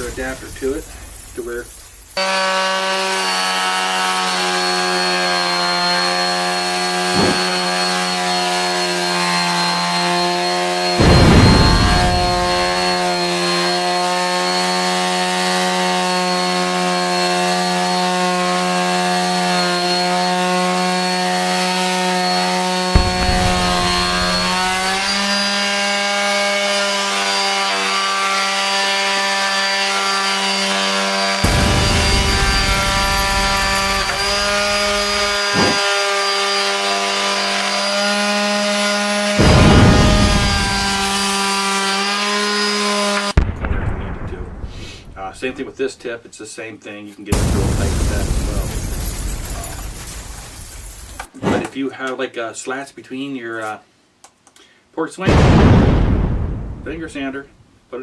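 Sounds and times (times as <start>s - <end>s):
detail sander buzzing on wood: 2.2s - 43.4s.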